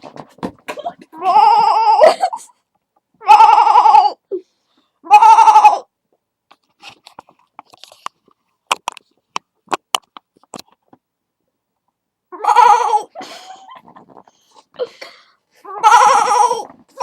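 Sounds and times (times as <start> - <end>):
girl bleating like a goat: 1.2 - 2.1, 3.2 - 4.2, 5.0 - 5.8, 15.6 - 16.7
faint clicks and knocks: 6.1 - 11.2.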